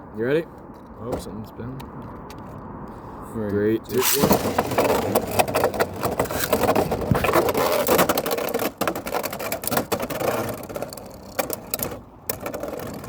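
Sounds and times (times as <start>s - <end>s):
spinning tops clashing clicks: 3.9s - 6.6s
spinning tops whirring and grinding: 3.9s - 13.0s.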